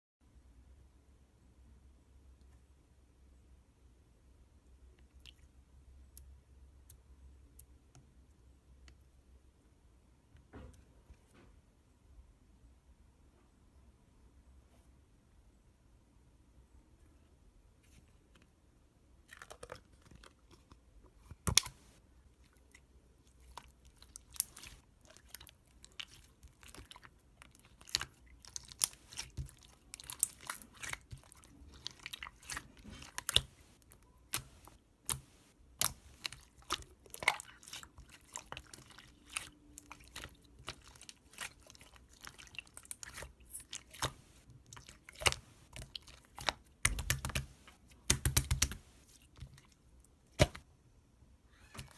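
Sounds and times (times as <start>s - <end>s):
slime crackling as kneaded: 23.2s - 50.6s.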